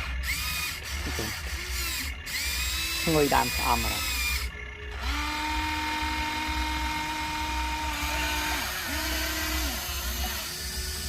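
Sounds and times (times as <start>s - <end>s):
toy vehicle motor whining: 0.0s - 11.0s.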